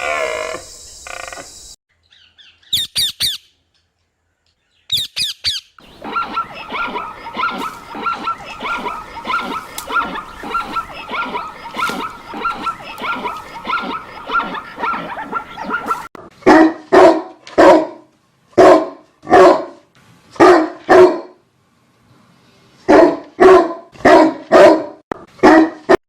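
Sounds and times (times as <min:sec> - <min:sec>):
busy continuous sound: 0:05.8 - 0:16.1
dog barking: 0:05.9 - 0:18.0, 0:18.6 - 0:19.8, 0:20.4 - 0:21.4, 0:22.9 - 0:26.0.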